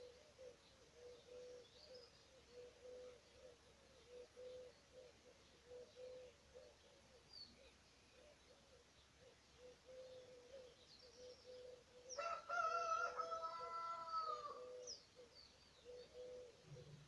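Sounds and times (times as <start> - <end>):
low bird calls: 0.0 - 12.3, 13.6 - 17.0
rooster crowing: 12.2 - 14.8.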